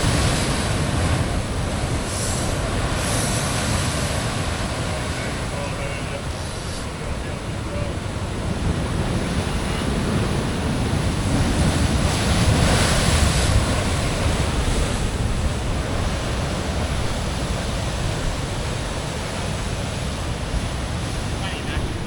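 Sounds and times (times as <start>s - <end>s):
ocean surf against rocks: 0.0s - 22.0s
wind on microphone: 0.0s - 22.0s.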